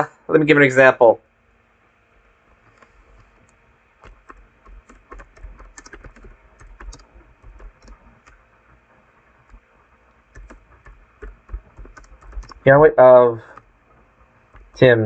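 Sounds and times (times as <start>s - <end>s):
typing on computer keyboard: 4.0s - 8.4s, 9.3s - 9.6s, 10.3s - 12.7s, 14.4s - 14.8s.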